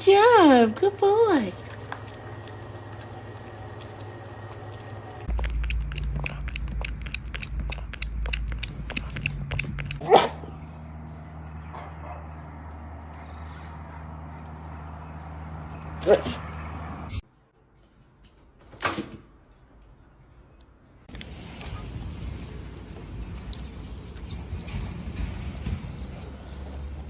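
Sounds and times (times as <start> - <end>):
steady low hum: 1.5 - 17.2.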